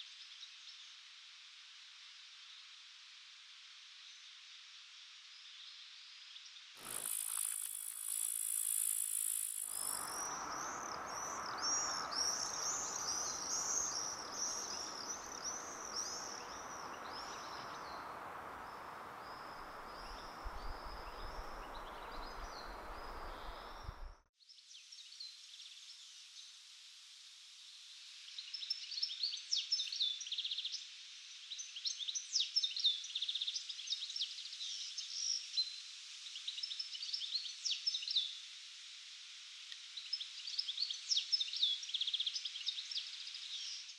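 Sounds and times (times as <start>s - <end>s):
sharp bird chirps and trills: 6.8s - 18.0s
birds chirping: 6.8s - 24.1s.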